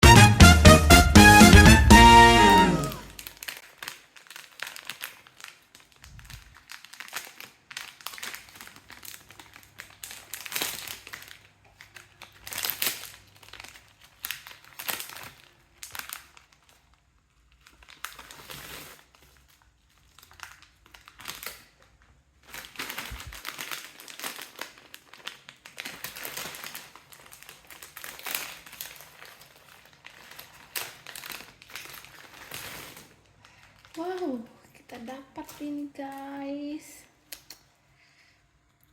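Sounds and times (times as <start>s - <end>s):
plastic snack packets crinkling: 2.0s - 38.9s.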